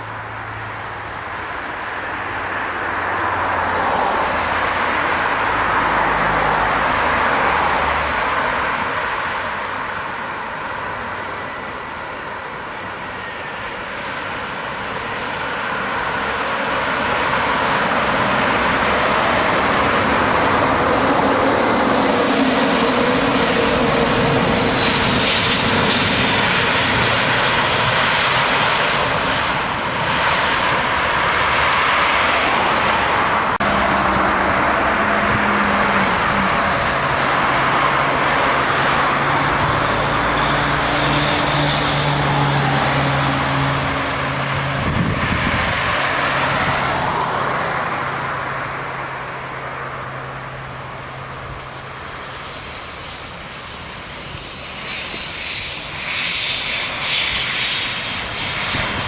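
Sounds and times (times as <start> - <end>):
jet airliner engines roaring: 0.0 - 59.0
low engine hum: 32.2 - 52.8.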